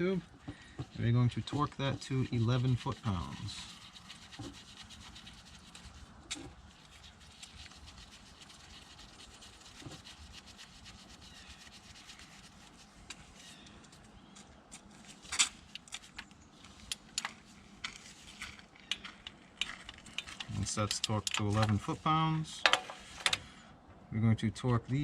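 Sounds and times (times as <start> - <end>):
wrench scraping on nut: 15.3 - 22.0, 22.6 - 23.5.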